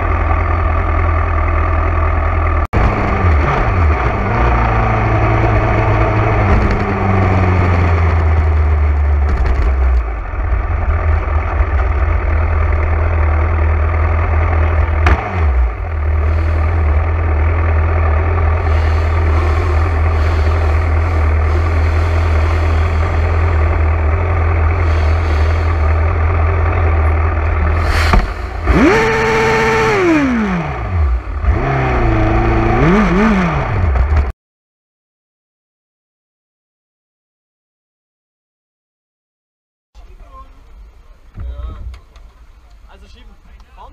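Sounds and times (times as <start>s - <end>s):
motorcycle engine rumbling: 0.0s - 34.3s, 40.0s - 43.9s
motorcycle engine crack: 6.5s - 10.2s.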